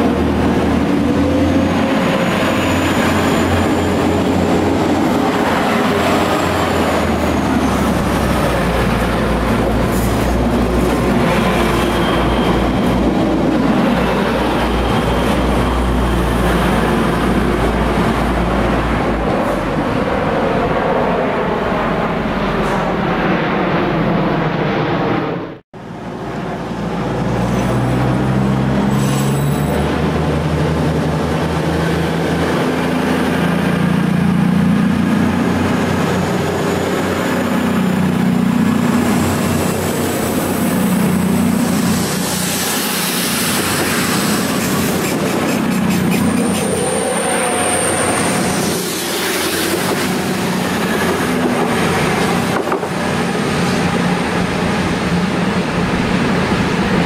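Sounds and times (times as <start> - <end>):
diesel engines droning: 0.0 - 24.7, 25.4 - 57.0
train noise: 0.0 - 57.0
train wheels squealing: 11.2 - 13.2, 14.4 - 16.3, 28.9 - 29.8, 42.2 - 51.3.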